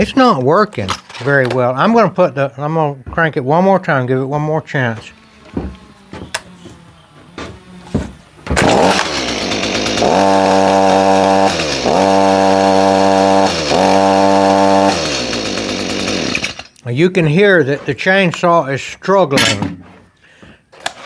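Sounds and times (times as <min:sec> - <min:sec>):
chainsaw starting and running: 0:04.8 - 0:06.6, 0:07.7 - 0:16.8.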